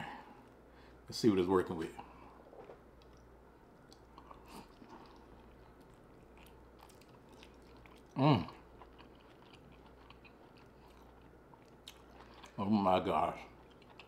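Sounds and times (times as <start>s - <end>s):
wet chewing and mouth clicks: 2.6s - 12.6s, 13.5s - 14.0s.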